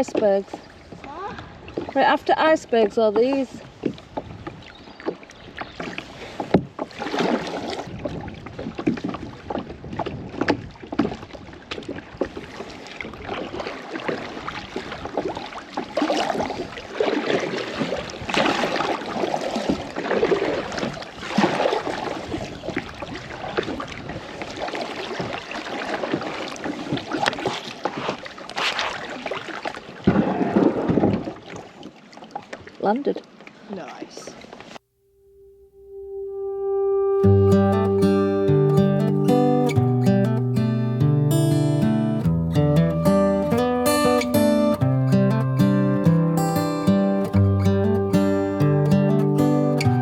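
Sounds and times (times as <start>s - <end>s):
paddle splashing in water: 0.0s - 34.8s.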